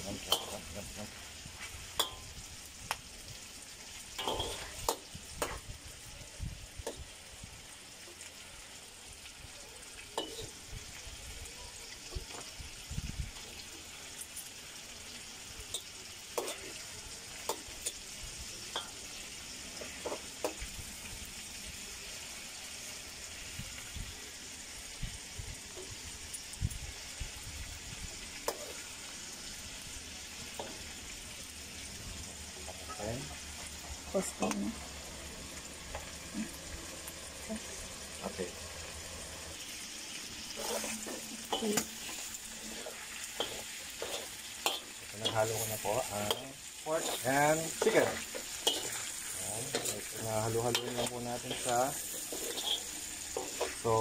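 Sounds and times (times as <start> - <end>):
meat sizzling in a wok: 0.0 - 54.0
metal spatula scraping and clicking: 4.2 - 5.6, 15.7 - 16.8, 40.6 - 53.8.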